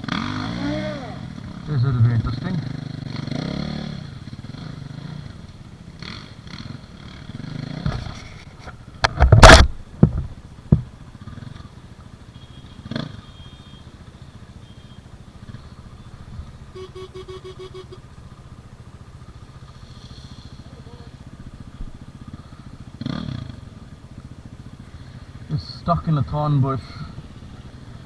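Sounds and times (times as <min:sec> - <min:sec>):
engine revving with sharp cracks: 0:00.0 - 0:11.7, 0:12.8 - 0:13.2, 0:19.6 - 0:28.0
dirt bike engine idling: 0:00.0 - 0:28.0
knocks: 0:09.0 - 0:10.9.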